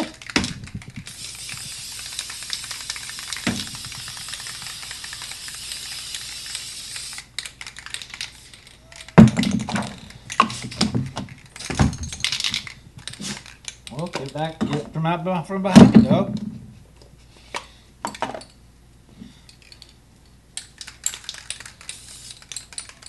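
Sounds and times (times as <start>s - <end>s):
spray paint can hissing: 0.1s - 9.2s, 20.7s - 23.0s.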